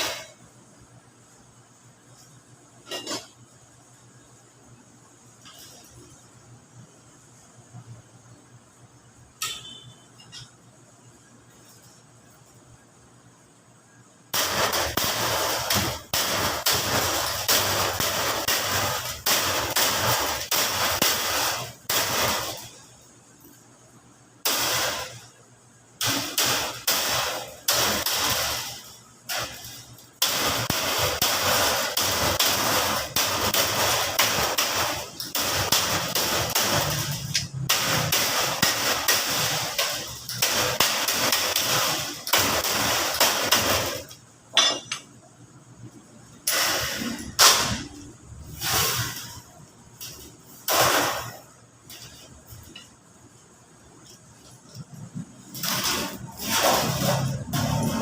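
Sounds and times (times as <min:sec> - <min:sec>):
sheet metal rattling and scraping: 0:26.1 - 0:45.0, 0:46.8 - 0:58.0
sheet metal clanks: 0:26.1 - 0:45.2, 0:55.4 - 0:58.0.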